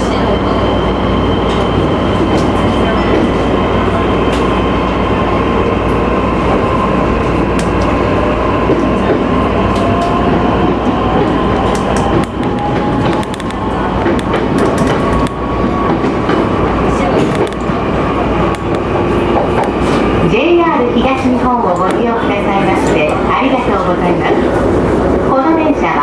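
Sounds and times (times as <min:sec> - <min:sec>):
train wheels clicking on track: 0:05.8 - 0:23.2.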